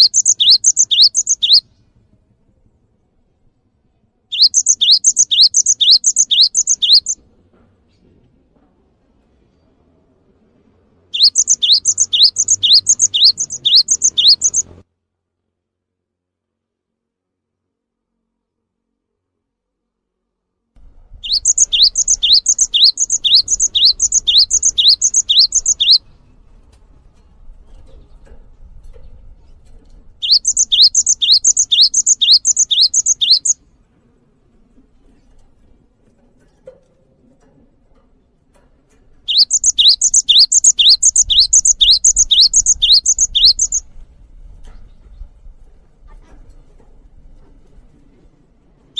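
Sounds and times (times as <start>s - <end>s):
songbird whistling and chirping: 0.0s - 1.7s, 4.3s - 7.2s, 11.2s - 14.8s, 21.1s - 26.1s, 30.2s - 33.6s, 39.3s - 43.9s.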